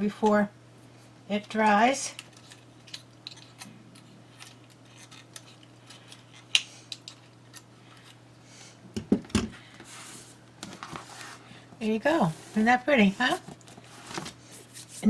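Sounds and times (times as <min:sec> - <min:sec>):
rubbing on paper: 0:09.9 - 0:15.0.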